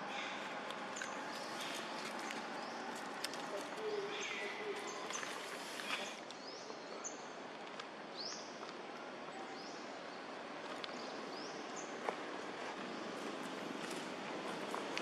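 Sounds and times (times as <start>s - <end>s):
bird chirping: 0.0s - 7.4s
outdoor ambience: 0.0s - 15.0s.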